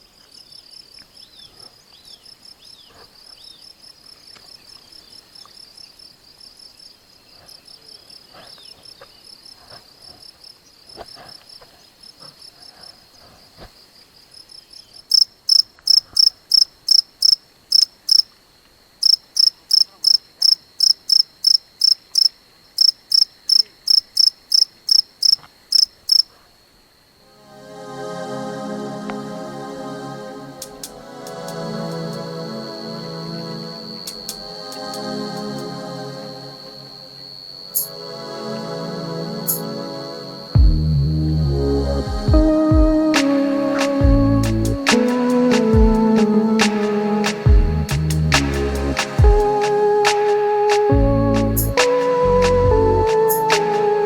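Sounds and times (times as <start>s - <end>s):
crickets trilling: 0.0s - 54.0s
insect chirping loudly: 14.4s - 54.0s.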